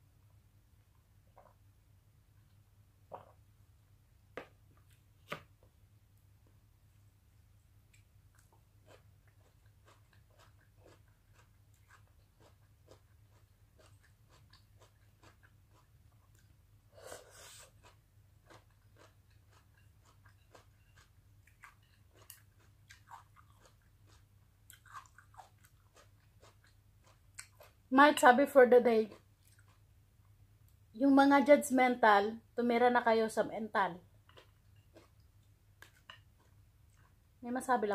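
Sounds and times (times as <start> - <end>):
low steady hum: 0.0 - 37.9
close-miked chewing: 7.8 - 27.9, 29.0 - 30.4, 34.1 - 37.3.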